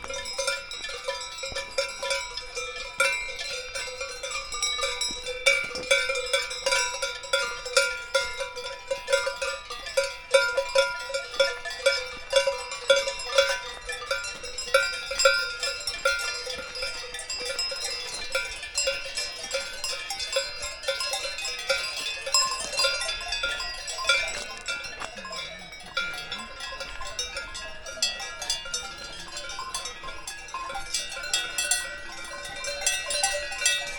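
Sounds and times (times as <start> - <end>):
cowbells clanking: 0.0 - 33.9.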